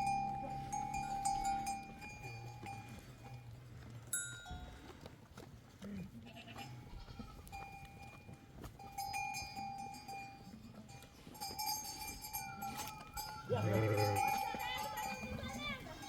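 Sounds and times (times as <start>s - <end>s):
animal bells clinking: 0.0s - 5.1s, 6.4s - 16.0s
sheep or goat bleating: 6.2s - 7.5s, 13.5s - 16.0s.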